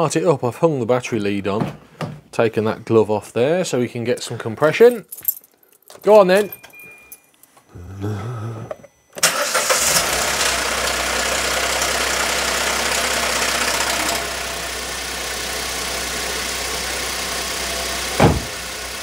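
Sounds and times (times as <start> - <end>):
car engine idling: 9.2 - 19.0.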